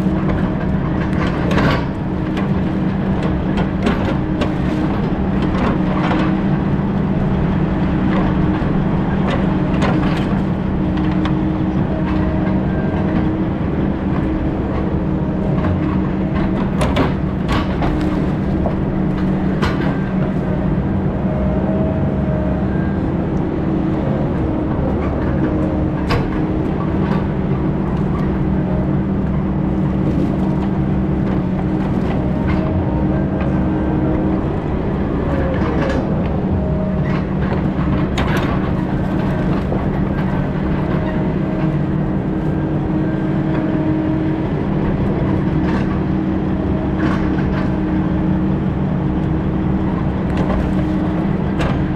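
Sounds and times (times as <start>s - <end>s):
heavy diesel engine running: 0.0s - 51.9s
knocks and clanks: 9.2s - 20.6s.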